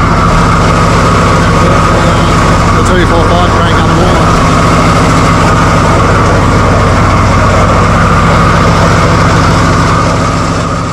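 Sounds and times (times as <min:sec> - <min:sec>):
car engine idling: 0:00.0 - 0:10.9.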